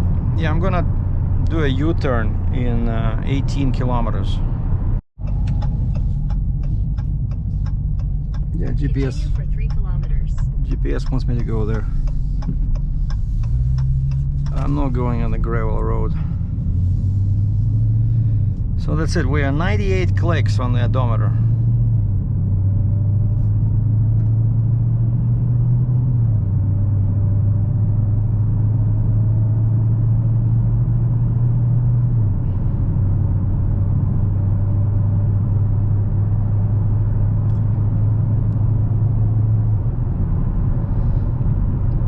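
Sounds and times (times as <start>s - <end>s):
car engine drone: 0.0s - 42.0s
road noise: 0.0s - 42.0s.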